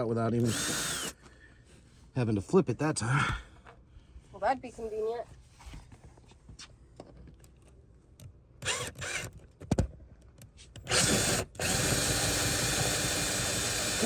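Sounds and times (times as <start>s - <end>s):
power drill running: 0.4s - 1.2s, 8.6s - 9.3s, 10.9s - 14.0s.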